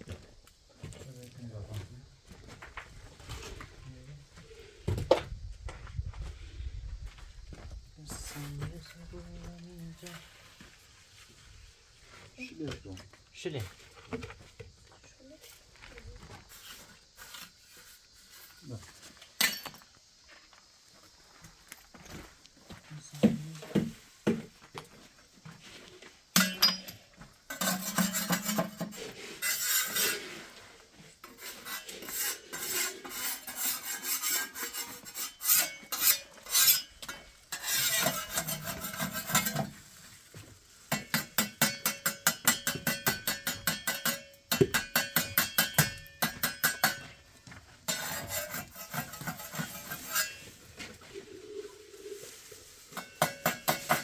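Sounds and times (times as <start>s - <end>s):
hand tool scraping: 16.2s - 19.9s, 25.6s - 54.0s.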